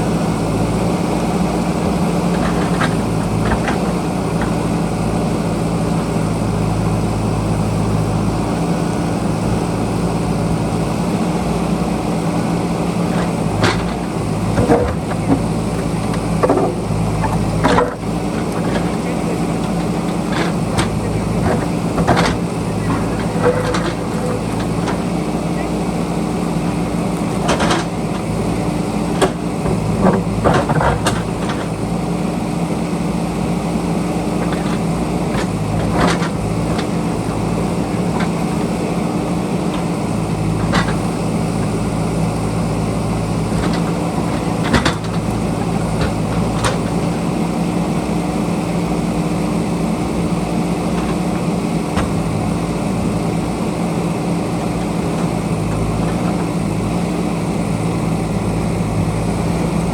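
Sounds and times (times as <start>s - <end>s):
diesel engine running: 0.0s - 59.9s
sharp knocks and clanks: 2.3s - 4.6s, 13.1s - 25.3s, 26.6s - 28.4s, 29.1s - 31.8s, 43.5s - 47.3s.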